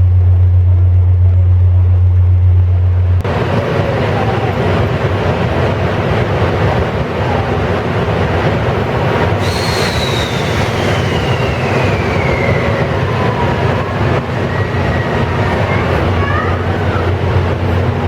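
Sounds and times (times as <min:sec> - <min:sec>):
high whine falling in pitch: 0:00.0 - 0:03.3
train coach running on rails: 0:00.0 - 0:18.0
short rising squeals: 0:09.4 - 0:13.3.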